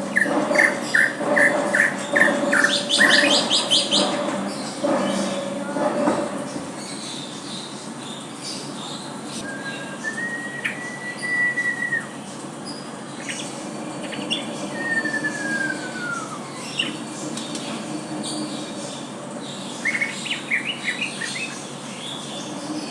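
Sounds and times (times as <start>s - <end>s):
bird whistling: 0.0s - 4.2s, 9.4s - 12.2s, 14.1s - 17.0s.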